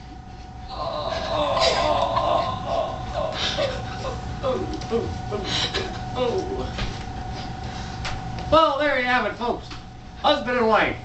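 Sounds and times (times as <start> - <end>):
faint steady hum: 0.0 - 11.0
person making wordless cries: 0.7 - 6.8.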